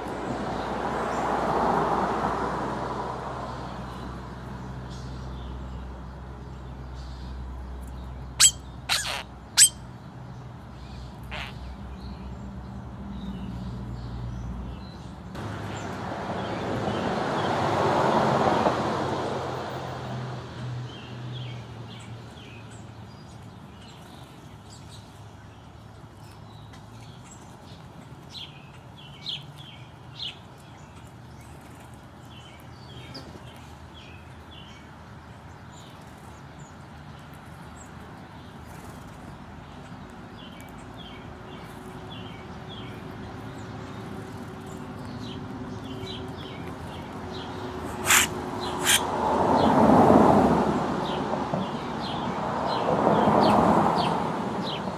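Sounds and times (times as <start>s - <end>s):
vehicle passing: 0.0s - 5.6s, 11.3s - 21.9s, 41.4s - 54.9s
small birds chirping: 4.9s - 17.0s, 21.0s - 49.7s.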